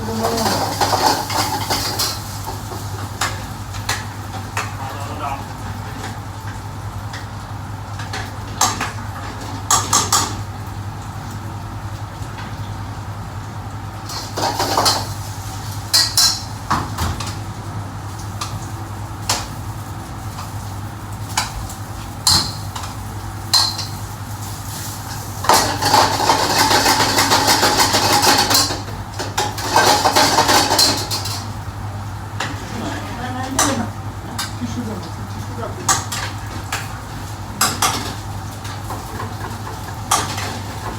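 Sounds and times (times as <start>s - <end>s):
metal pots and pans clattering: 0.1s - 3.4s, 14.1s - 15.2s, 22.2s - 24.0s, 25.4s - 31.5s, 37.6s - 40.9s.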